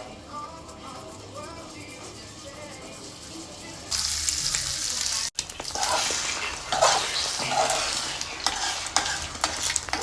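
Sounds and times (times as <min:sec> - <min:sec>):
eggs sizzling in a frying pan: 0:03.8 - 0:10.0
utensil scraping a pan: 0:05.7 - 0:10.0.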